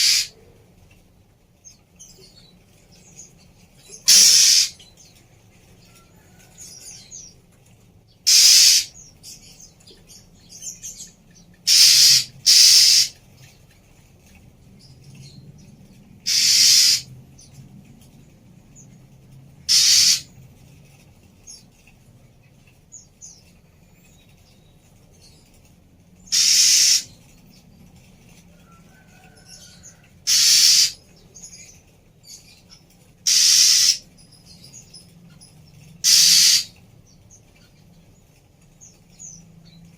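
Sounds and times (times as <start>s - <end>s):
bird giving harsh rasping calls: 0.0s - 0.4s, 4.0s - 4.8s, 8.2s - 9.1s, 11.6s - 13.2s, 16.2s - 17.1s, 19.6s - 20.4s, 26.3s - 27.2s, 30.2s - 31.0s, 33.2s - 34.1s, 36.0s - 36.8s.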